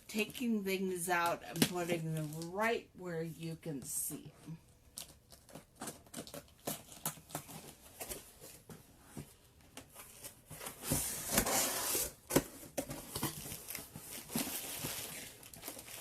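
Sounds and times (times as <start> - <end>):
cardboard and packing rustling: 4.1 - 16.0.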